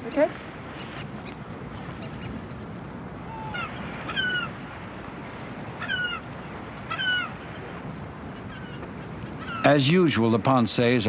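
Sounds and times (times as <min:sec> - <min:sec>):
bird calling short high calls: 0:03.2 - 0:04.6, 0:05.8 - 0:09.7.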